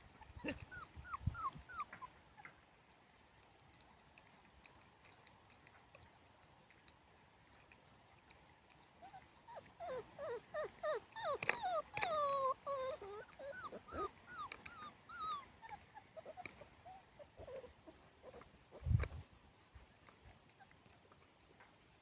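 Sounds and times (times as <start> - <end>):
puppies whimpering and whining: 0.0 - 2.6, 9.0 - 19.2.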